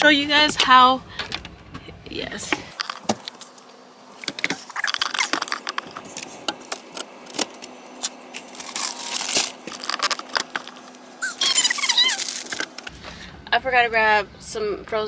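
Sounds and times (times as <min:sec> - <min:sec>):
rustling of handled objects: 0:02.7 - 0:12.9.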